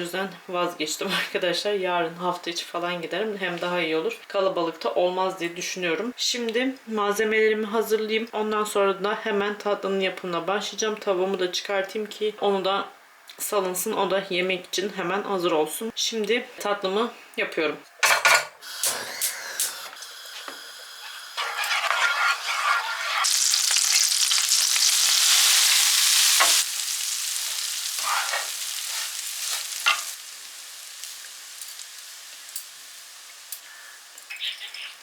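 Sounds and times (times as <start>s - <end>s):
loud steady hiss: 23.2s - 34.2s
utensils clinking on cookware: 28.0s - 30.2s.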